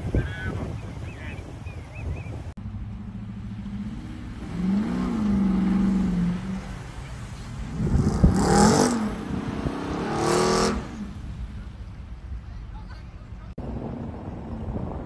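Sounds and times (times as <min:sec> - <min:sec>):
car engine revving: 0:02.6 - 0:12.2
water rushing and spraying: 0:03.0 - 0:12.5.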